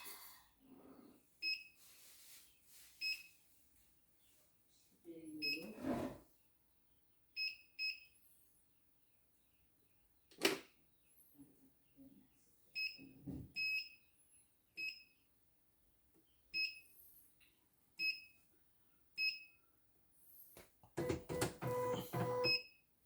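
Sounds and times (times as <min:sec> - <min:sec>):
control panel beeps: 0:21.0 - 0:22.6.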